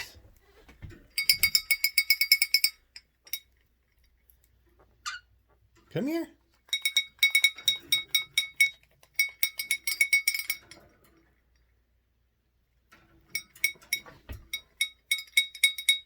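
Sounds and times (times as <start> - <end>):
small metal bell jingling: 1.2 - 3.5, 6.7 - 10.8, 13.3 - 16.0.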